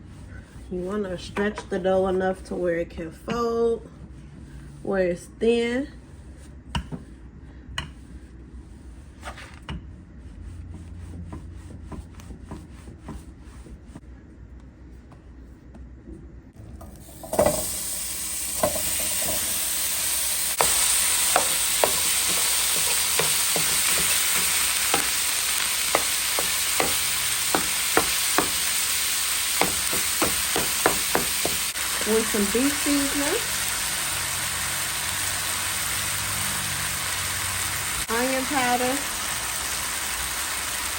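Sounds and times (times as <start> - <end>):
meat sizzling in a pan: 16.9 - 40.9.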